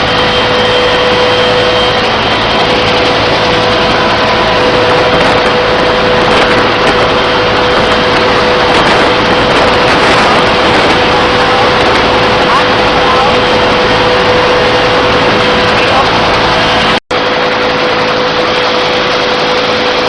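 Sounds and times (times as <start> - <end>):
helicopter running: 0.0 - 20.0
steady whine: 0.0 - 20.0.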